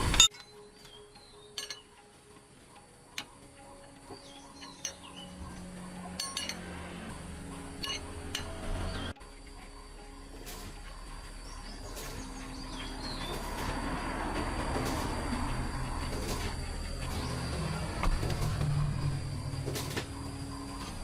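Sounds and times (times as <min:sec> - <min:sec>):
light metallic clinks and taps: 0:00.2 - 0:02.0, 0:06.2 - 0:06.7.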